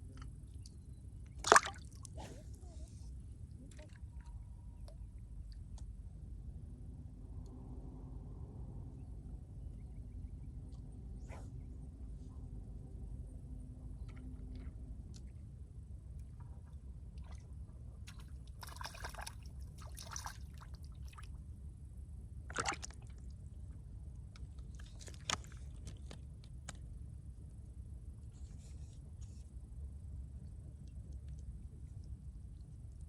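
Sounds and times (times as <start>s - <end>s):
low outdoor rumble: 0.0s - 33.0s
water splashing and sloshing: 1.3s - 3.0s, 16.1s - 21.4s, 22.5s - 26.8s.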